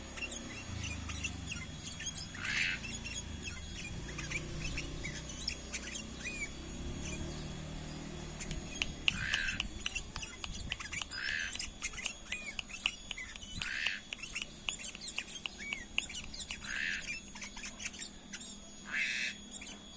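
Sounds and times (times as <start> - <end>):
bird chirping: 0.0 - 19.9
harsh bird call: 0.2 - 6.5.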